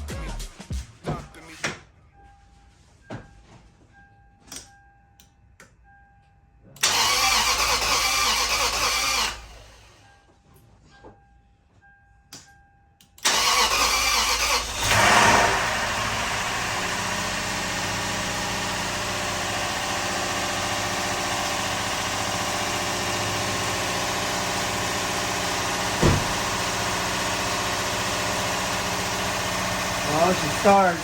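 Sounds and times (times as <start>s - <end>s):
car engine cranking and idling: 6.8s - 10.2s, 13.2s - 31.0s.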